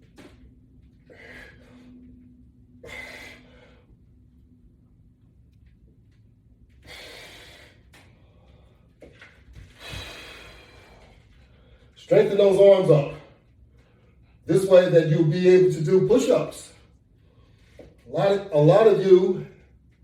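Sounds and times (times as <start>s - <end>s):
man breathing heavily: 0.9s - 4.2s, 6.7s - 12.0s.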